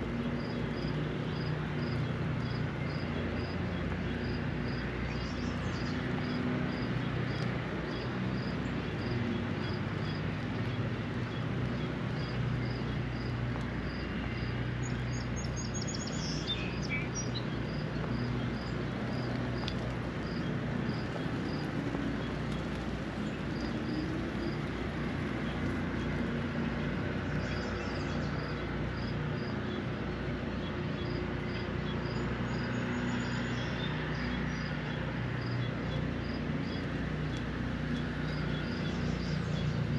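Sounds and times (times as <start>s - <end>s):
distant traffic rumble: 0.0s - 39.9s
rain hiss: 6.8s - 29.6s
bird chirping: 14.8s - 19.3s.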